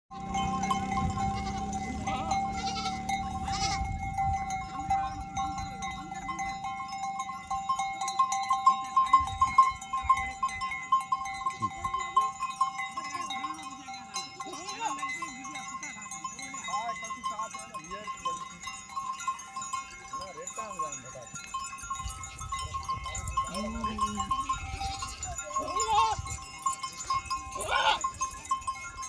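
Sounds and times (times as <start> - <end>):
goats bleating: 0.1 - 4.0, 23.5 - 26.3, 27.5 - 28.2
bells clinking: 0.1 - 29.0.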